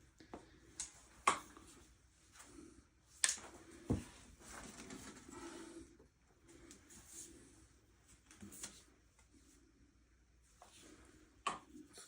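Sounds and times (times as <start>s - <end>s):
rustling and scraping: 3.4s - 5.7s.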